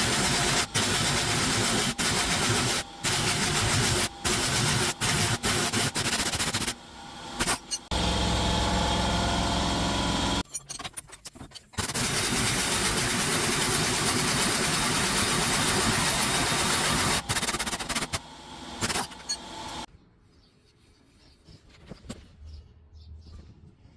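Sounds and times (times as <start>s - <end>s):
car engine running: 7.9s - 10.4s.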